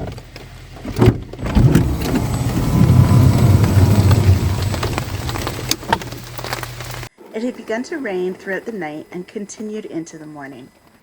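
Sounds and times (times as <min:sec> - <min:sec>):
vehicle engine rumbling: 0:00.0 - 0:07.1.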